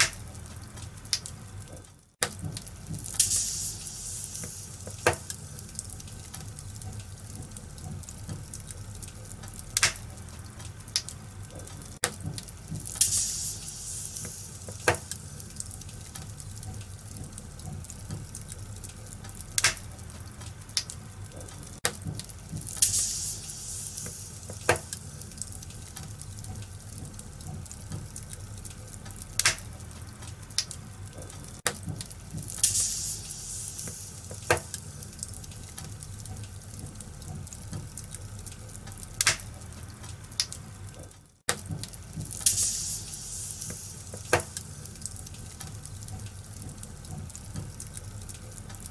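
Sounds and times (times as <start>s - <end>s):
sharp pops of fire: 0.0s - 1.4s, 2.2s - 7.6s, 8.2s - 17.5s, 18.1s - 40.7s, 41.5s - 48.1s
wood fire crackling: 0.0s - 48.9s
bursts of hiss: 3.2s - 5.6s, 12.8s - 15.5s, 22.8s - 25.3s, 32.4s - 35.2s, 42.4s - 45.0s.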